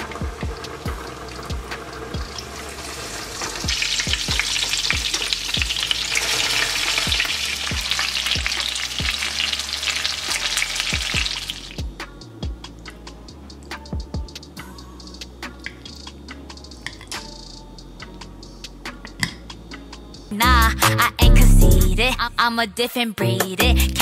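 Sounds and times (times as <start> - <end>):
music beat with bass kicks: 0.0 - 2.6, 3.3 - 6.1, 6.9 - 22.5, 23.2 - 24.0
chicken sizzling in hot oil: 0.0 - 11.8.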